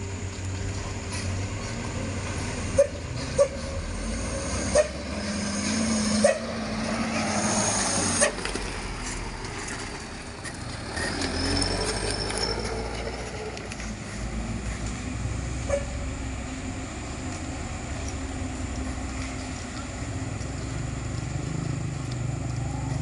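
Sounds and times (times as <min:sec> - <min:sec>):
heavy truck engine running: 0:00.0 - 0:23.0
truck body clanking and creaking: 0:08.3 - 0:14.0.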